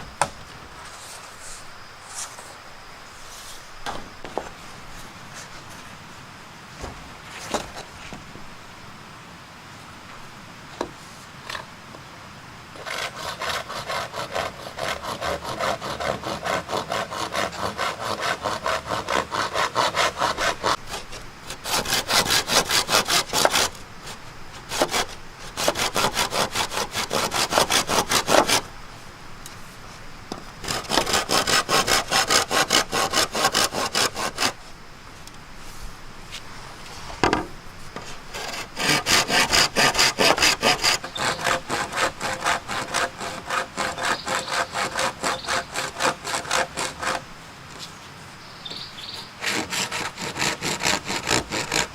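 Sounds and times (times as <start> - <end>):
hand saw cutting: 12.8 - 28.7, 30.6 - 34.6, 38.0 - 47.2, 49.0 - 51.9.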